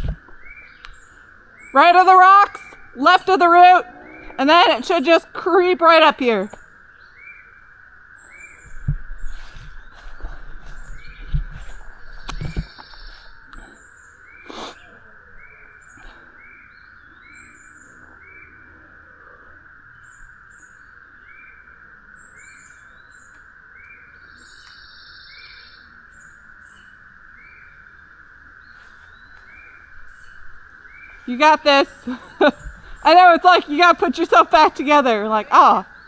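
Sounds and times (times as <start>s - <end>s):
bird chirping: 0.0s - 36.0s
high-pitched drone: 2.9s - 6.2s.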